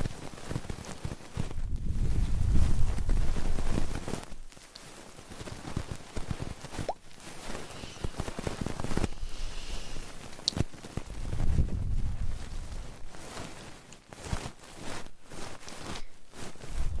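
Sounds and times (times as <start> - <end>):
scratching on microphone: 0.0 - 17.0
small clicks and crackles: 0.0 - 17.0.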